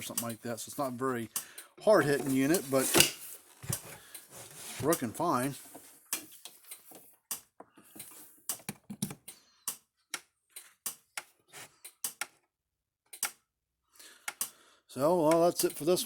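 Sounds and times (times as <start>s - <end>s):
sharp clicks and light taps: 14.2s - 14.6s.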